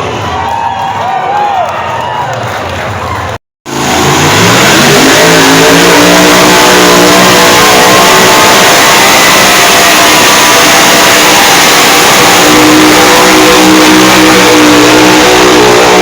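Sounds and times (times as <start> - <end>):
truck engine revving: 3.7 - 16.0.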